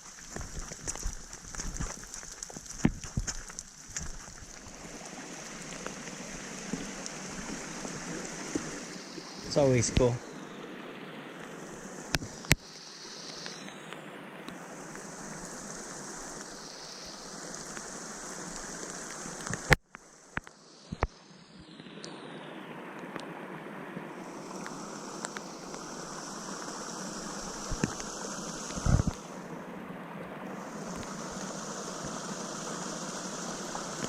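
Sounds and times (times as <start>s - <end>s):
water rushing: 0.0s - 34.0s.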